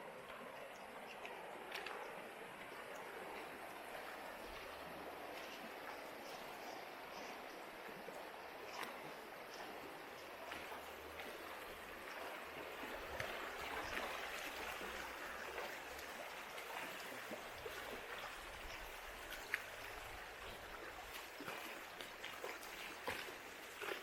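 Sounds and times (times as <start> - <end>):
river water flowing over rocks: 0.0 - 24.0.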